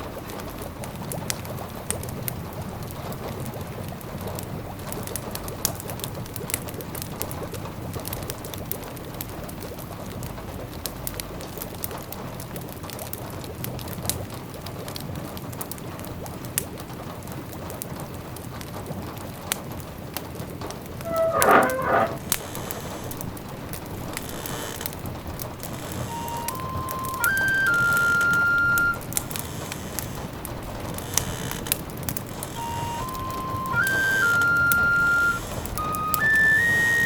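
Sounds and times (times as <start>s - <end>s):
wood fire crackling: 21.0s - 37.0s.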